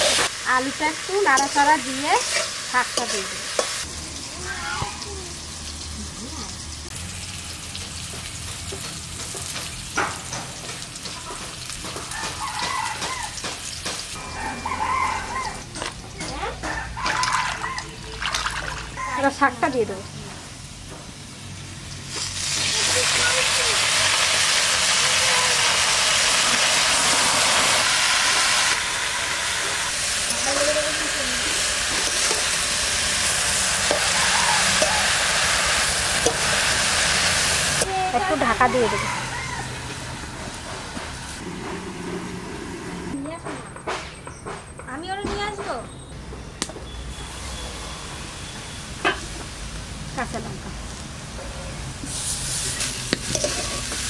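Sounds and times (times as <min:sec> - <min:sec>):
potatoes sizzling in hot oil: 0:00.0 - 0:14.2, 0:17.0 - 0:41.4, 0:47.0 - 0:54.0.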